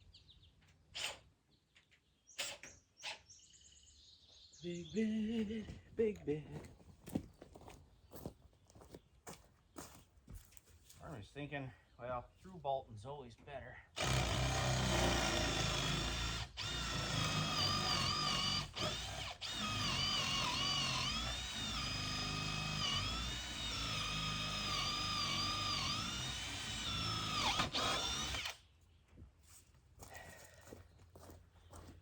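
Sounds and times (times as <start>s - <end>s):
electric drill motor whine: 14.0s - 28.6s.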